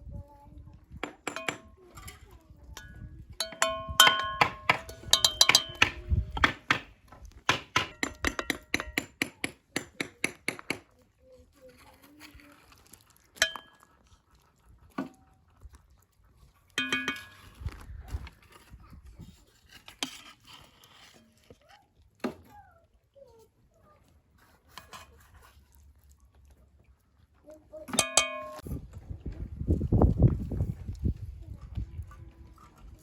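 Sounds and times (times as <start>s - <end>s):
metal utensils and dishes clinking: 1.2s - 6.0s, 13.4s - 14.0s, 16.8s - 17.7s, 27.9s - 28.8s.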